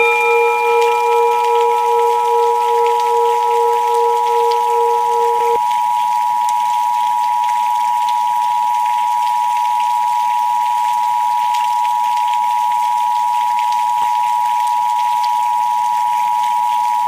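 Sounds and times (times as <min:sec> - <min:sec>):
lower tone: 0:00.0 - 0:05.6
steady pure sine tone: 0:00.0 - 0:05.6
soft rain hiss: 0:00.0 - 0:17.0.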